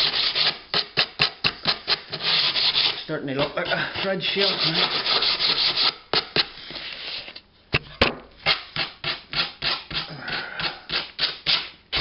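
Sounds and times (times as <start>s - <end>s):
sandpaper rubbing back and forth: 0.0s - 7.2s.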